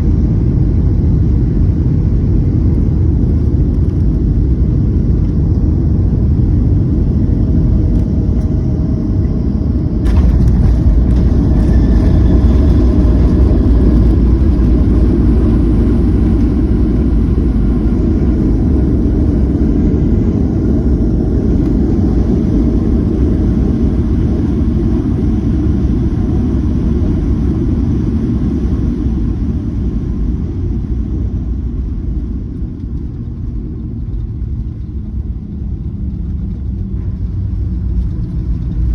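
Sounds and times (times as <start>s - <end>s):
airliner cabin rumble: 0.0s - 38.9s
jet braking on runway: 10.0s - 28.0s.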